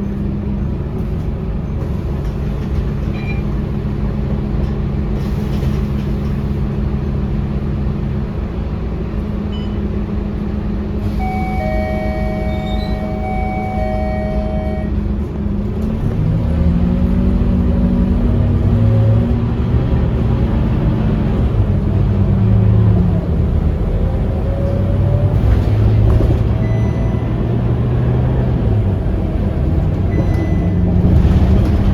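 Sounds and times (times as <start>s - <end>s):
bus diesel engine: 0.0s - 31.9s
electronic two-note tone: 11.1s - 15.0s.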